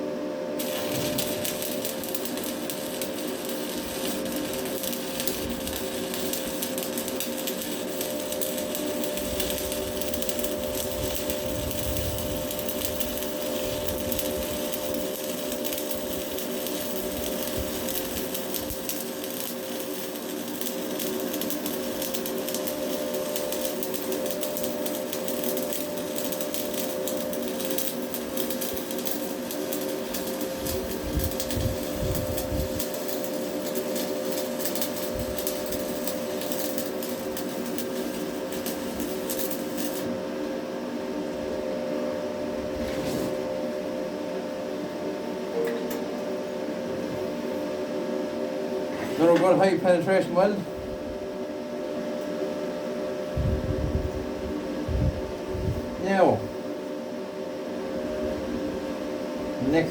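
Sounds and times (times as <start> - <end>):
steady hum: 0.0 - 59.9
welding arc crackling: 0.6 - 40.2, 59.6 - 59.9.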